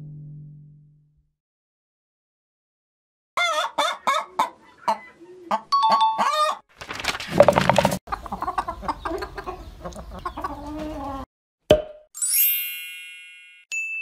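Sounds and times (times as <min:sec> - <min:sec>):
cartoon hens clucking: 0:03.4 - 0:06.6, 0:08.1 - 0:11.2.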